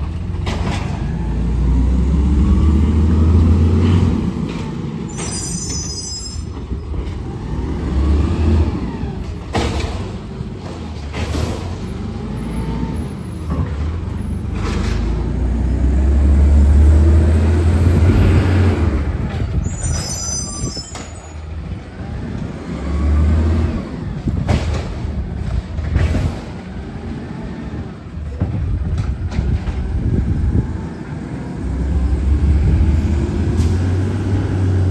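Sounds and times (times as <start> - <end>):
garbage truck diesel engine: 0.0 - 34.9
short high squeals: 5.1 - 6.5, 19.6 - 21.4.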